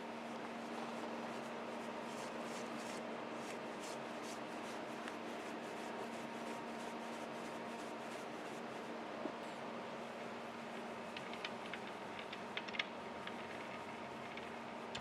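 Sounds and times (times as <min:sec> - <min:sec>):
brushing strokes: 0:00.8 - 0:08.9.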